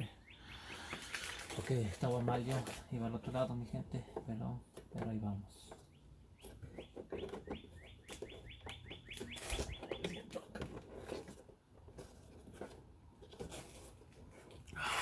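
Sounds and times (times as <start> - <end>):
small bird chirping: 0.0 - 1.6, 5.8 - 10.4.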